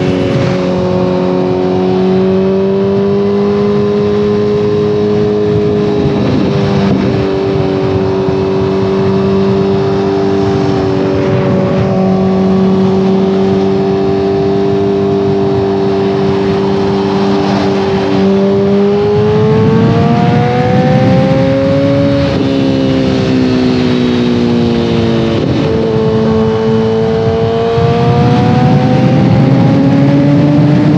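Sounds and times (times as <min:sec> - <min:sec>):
motorcycle engine cruising: 0:00.0 - 0:30.9
wind noise: 0:00.0 - 0:30.9.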